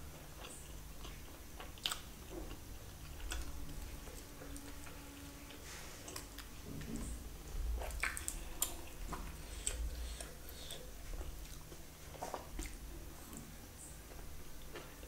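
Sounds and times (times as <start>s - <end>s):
person chewing food: 0.0s - 15.0s
wet clicks and smacks: 7.9s - 10.3s.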